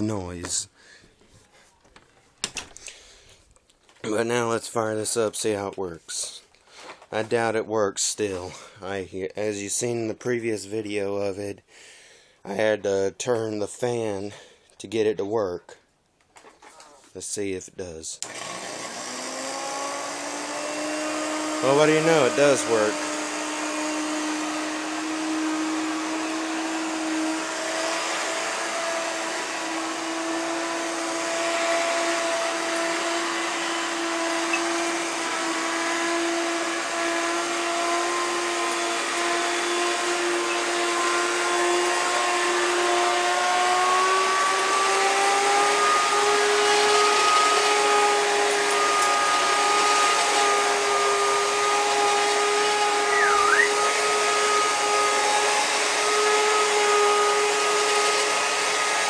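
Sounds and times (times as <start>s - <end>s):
vacuum cleaner motor whine: 18.2s - 59.0s.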